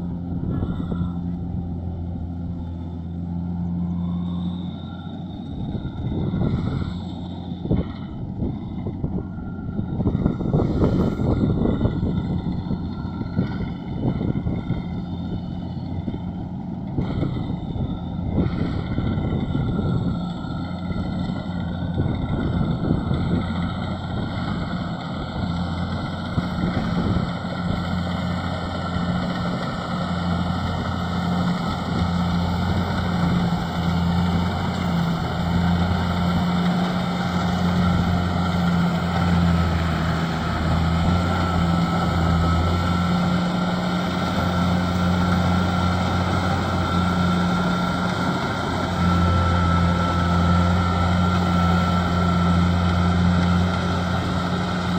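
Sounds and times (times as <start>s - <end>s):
harvester engine humming: 0.0s - 54.9s
machinery noise: 0.0s - 54.9s.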